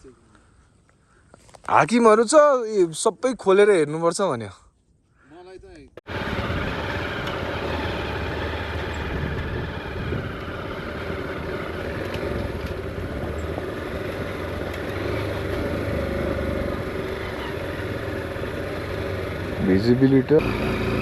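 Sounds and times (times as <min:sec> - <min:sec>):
motorcycle engine running: 0:06.1 - 0:21.0.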